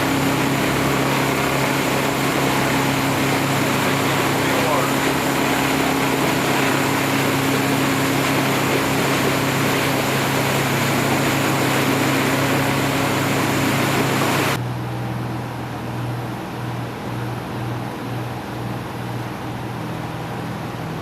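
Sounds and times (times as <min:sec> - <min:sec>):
motorboat engine running: 0:00.0 - 0:21.0.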